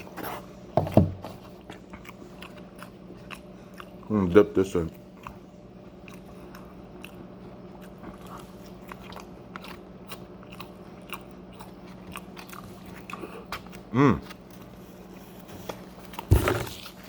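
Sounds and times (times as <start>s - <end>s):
chewing crunchy food: 0.0s - 17.0s
faint steady hum: 0.0s - 17.0s.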